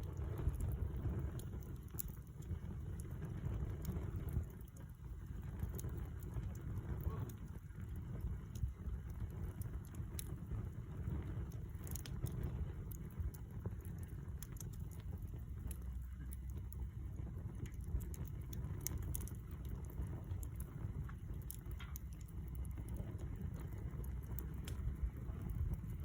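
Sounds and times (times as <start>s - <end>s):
campfire crackling and popping: 0.0s - 26.0s
low steady rumble: 0.0s - 26.0s.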